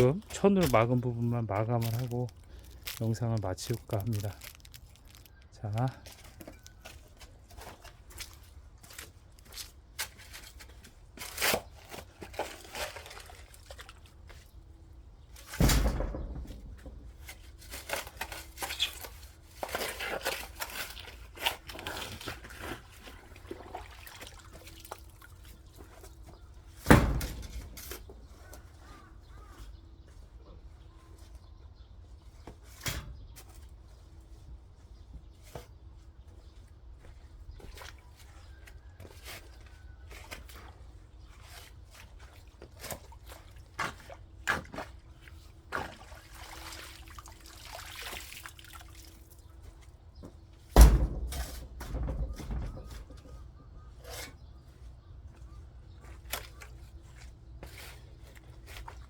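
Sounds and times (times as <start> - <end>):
scrapes and knocks in soil: 0.0 - 47.2, 47.9 - 59.0
heavy thuds: 15.6 - 17.2, 50.8 - 53.1.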